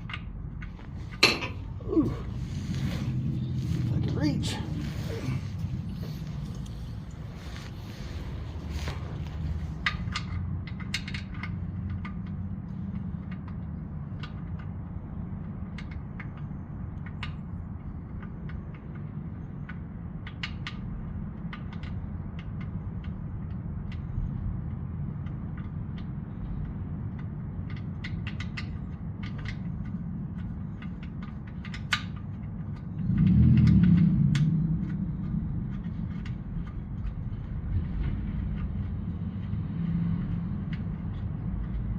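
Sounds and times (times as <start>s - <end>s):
tools and parts clinking: 0.0s - 7.8s, 8.6s - 14.8s
steady low rumble: 0.0s - 41.9s
louder low rumble: 0.7s - 10.4s.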